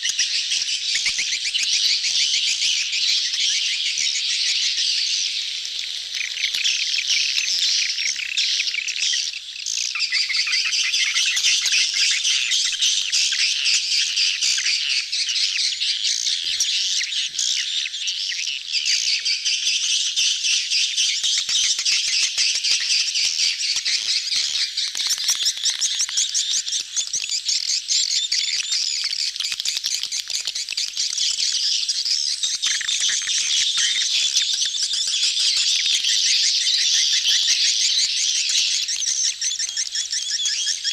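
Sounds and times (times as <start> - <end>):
swiftlets chattering and twittering: 21.2 - 40.9.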